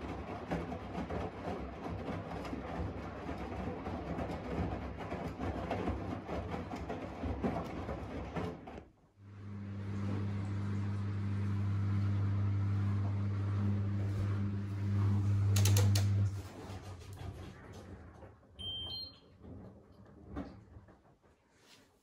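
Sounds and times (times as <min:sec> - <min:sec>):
washing machine clattering: 0:00.0 - 0:08.9, 0:15.1 - 0:21.4
washing machine humming: 0:00.0 - 0:21.8.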